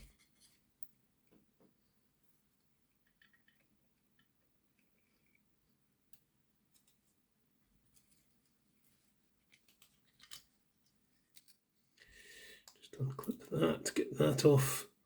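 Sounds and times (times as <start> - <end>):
small parts clicking and tapping: 2.9 - 5.4, 6.1 - 7.1, 9.4 - 13.4.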